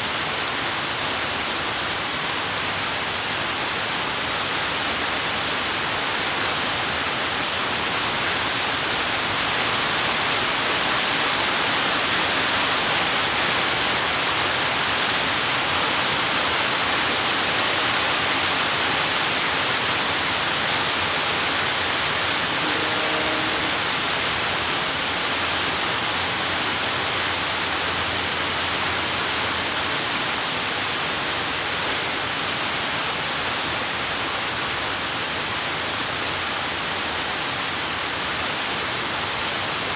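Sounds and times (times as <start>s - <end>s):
heavy rain falling: 0.0s - 39.9s
faint short tone: 22.6s - 23.9s.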